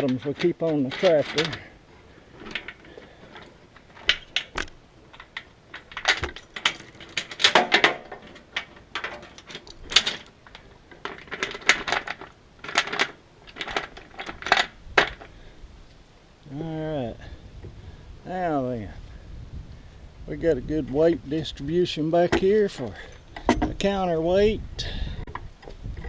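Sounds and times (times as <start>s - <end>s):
steel chain clinking and rattling: 0.0s - 15.3s, 22.8s - 23.7s.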